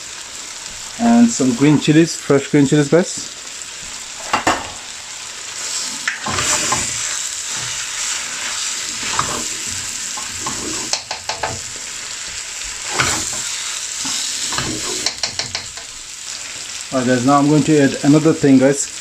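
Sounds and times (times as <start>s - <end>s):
curry sizzling in a pan: 0.0s - 19.0s
spoon stirring and scraping pan: 5.6s - 16.5s.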